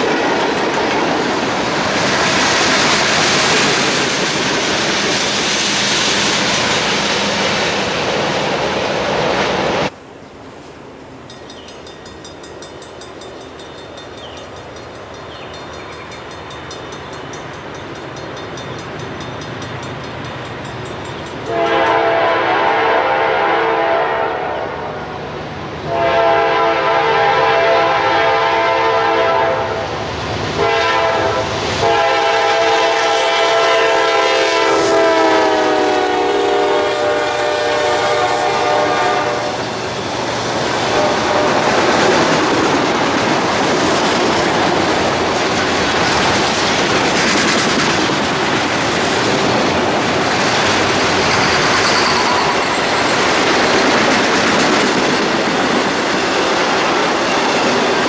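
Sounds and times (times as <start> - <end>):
train wheels rushing and clattering: 0.0 - 10.0, 11.2 - 23.6, 29.7 - 58.0
locomotive air horn: 21.5 - 24.8, 25.9 - 29.9, 30.6 - 39.6, 40.9 - 41.8.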